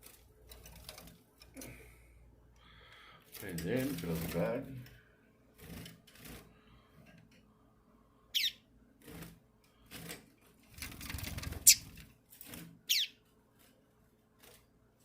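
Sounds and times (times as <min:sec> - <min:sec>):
knocks and scrapes on cage wire: 0:00.0 - 0:01.6, 0:05.5 - 0:07.4, 0:09.0 - 0:12.9
bird calls sliding down: 0:11.6 - 0:11.8.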